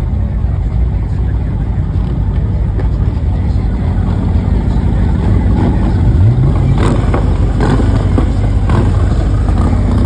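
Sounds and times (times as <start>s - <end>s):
car engine revving: 1.7s - 10.0s.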